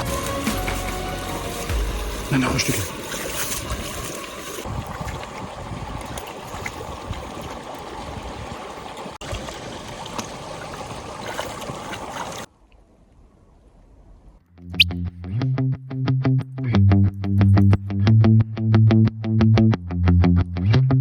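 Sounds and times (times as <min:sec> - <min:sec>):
stream trickling: 0:00.0 - 0:14.4.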